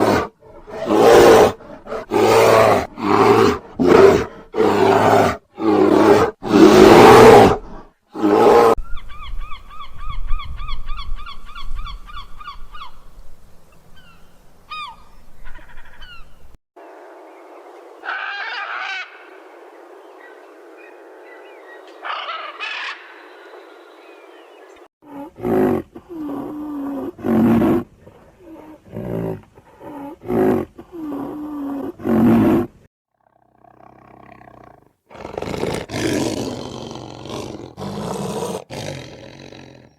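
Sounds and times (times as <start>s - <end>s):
animal roaring: 0.0s - 8.8s, 25.0s - 39.9s
bird calling: 14.0s - 16.5s.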